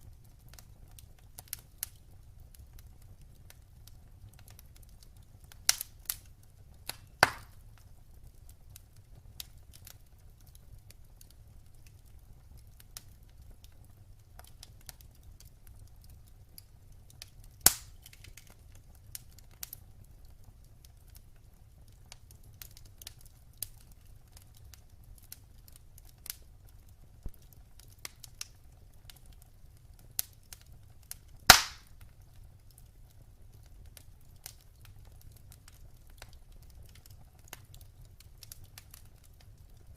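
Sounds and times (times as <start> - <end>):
fire crackling: 0.0 - 39.9
fire low rumble: 0.0 - 39.9
loud sharp fire pops: 6.9 - 7.6, 17.6 - 18.5, 31.5 - 32.0.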